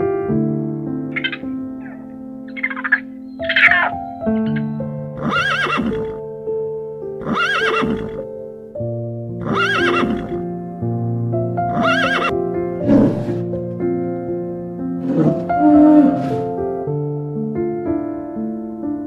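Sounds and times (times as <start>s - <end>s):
piano music: 0.0s - 19.0s
horse neighing: 2.6s - 6.2s, 7.2s - 8.2s, 9.4s - 10.4s, 11.7s - 13.5s, 15.0s - 16.6s.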